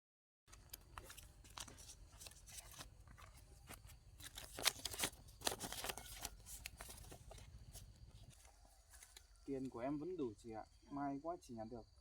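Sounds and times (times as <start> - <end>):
paper banknotes rustling: 0.6 - 9.2.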